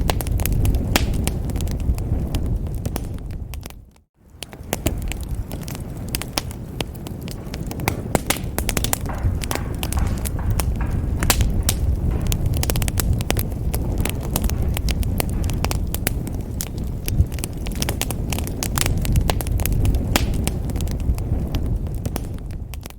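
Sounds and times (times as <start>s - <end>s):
low rumble of flames: 0.0s - 22.9s
wood fire crackling and popping: 0.0s - 22.9s.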